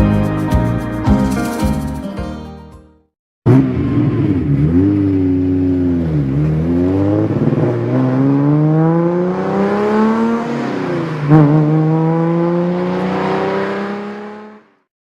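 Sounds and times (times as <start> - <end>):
car engine accelerating: 3.5 - 14.8.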